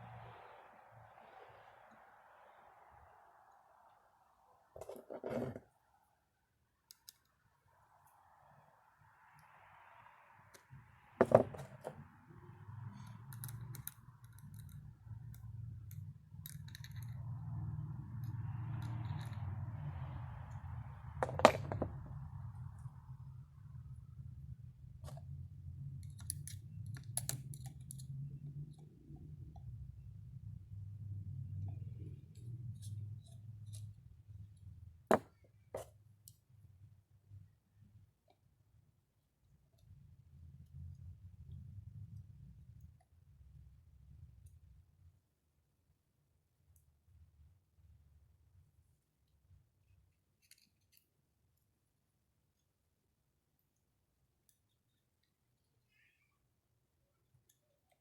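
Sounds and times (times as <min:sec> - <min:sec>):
small metal parts clicking: 0:13.0 - 0:17.3, 0:18.2 - 0:19.5, 0:26.0 - 0:28.1, 0:50.4 - 0:51.1.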